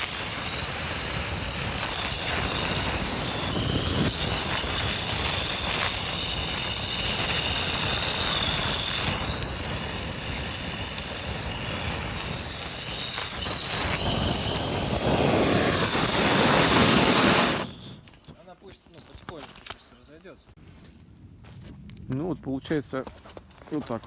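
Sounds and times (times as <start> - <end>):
thin high whistle: 0.0 - 18.5.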